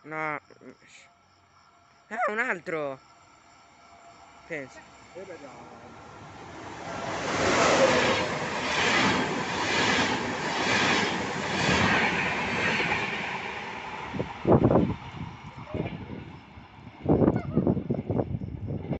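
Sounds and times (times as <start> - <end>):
train passing at speed: 1.2 - 18.9.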